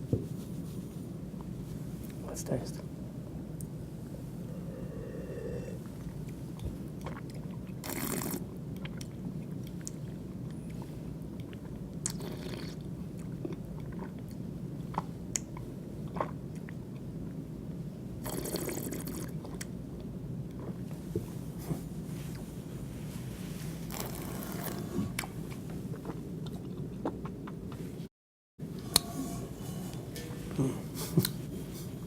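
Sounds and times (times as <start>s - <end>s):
person slurping wine: 4.4s - 6.2s, 7.0s - 8.4s, 12.1s - 12.8s, 23.9s - 25.2s.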